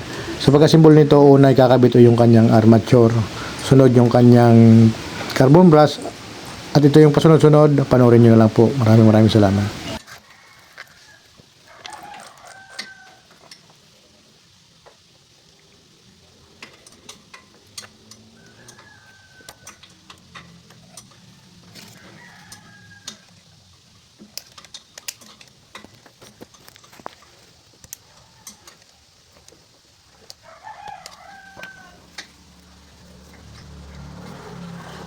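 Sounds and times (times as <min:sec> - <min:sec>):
rooster crowing: 0:09.4 - 0:13.4, 0:18.2 - 0:23.5, 0:28.1 - 0:28.8, 0:30.4 - 0:35.0.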